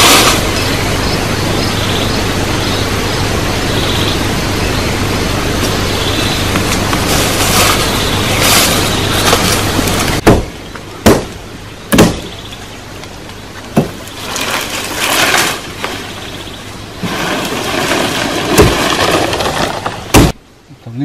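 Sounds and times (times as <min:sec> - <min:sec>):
rustling hissing noise: 0:00.0 - 0:00.9, 0:05.4 - 0:10.2, 0:13.4 - 0:20.1.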